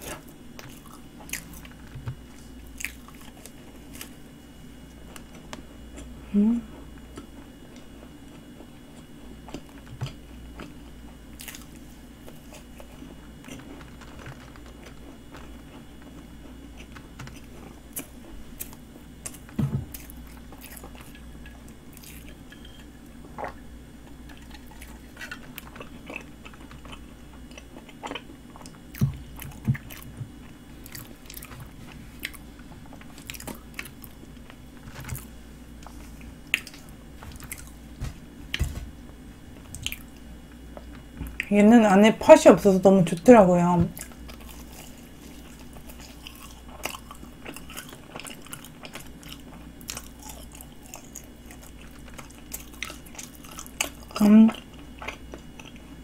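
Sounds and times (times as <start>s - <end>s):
wet chewing sounds: 0.0s - 38.6s, 39.5s - 41.5s, 43.9s - 56.0s
pastry crunching: 7.0s - 22.5s, 43.9s - 56.0s.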